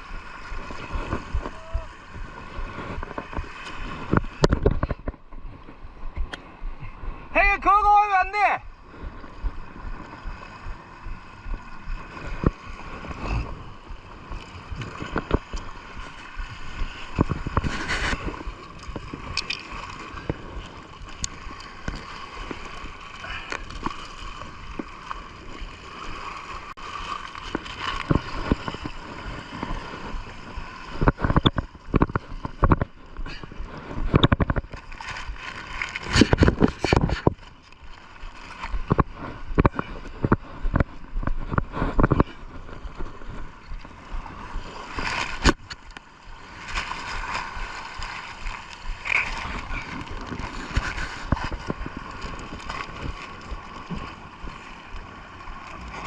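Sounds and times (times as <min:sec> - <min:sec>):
water bubbling and sloshing: 0:00.0 - 0:07.4, 0:08.6 - 0:56.0.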